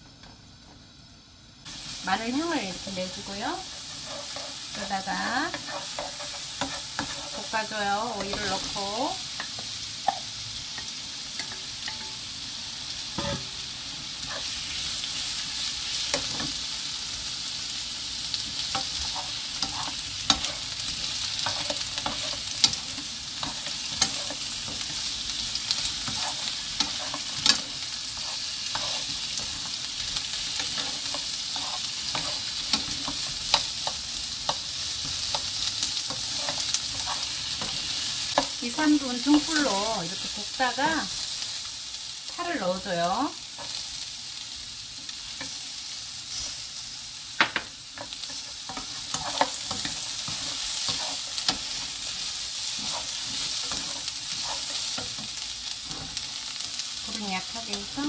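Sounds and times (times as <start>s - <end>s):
food sizzling in oil: 0.0s - 58.0s
wooden spatulas tapping pan: 47.4s - 48.2s.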